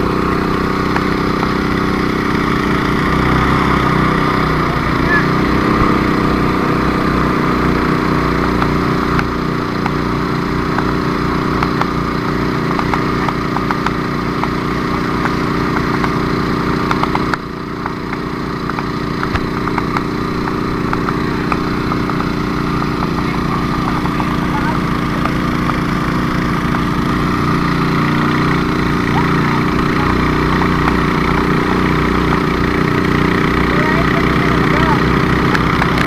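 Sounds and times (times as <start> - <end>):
engine running steadily: 0.0 - 36.0
faint ticking: 16.8 - 36.0.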